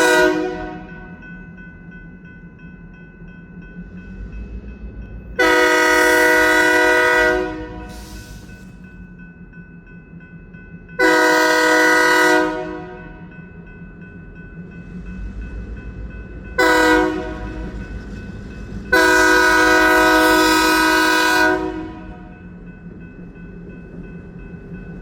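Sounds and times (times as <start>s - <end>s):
locomotive air horn blasts: 0.0s - 0.9s, 5.4s - 8.2s, 11.0s - 13.1s, 16.6s - 17.8s, 18.9s - 22.3s.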